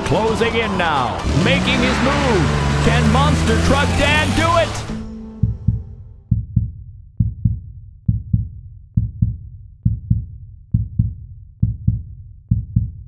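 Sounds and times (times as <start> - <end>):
deep heartbeat thumps: 4.9 - 13.0.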